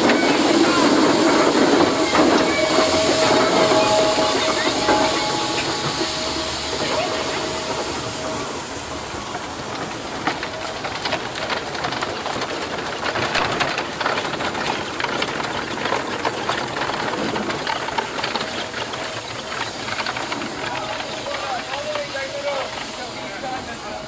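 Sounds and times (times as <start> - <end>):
steam engine hissing: 0.0 - 24.0
irregular clicks and knocks: 9.3 - 21.9.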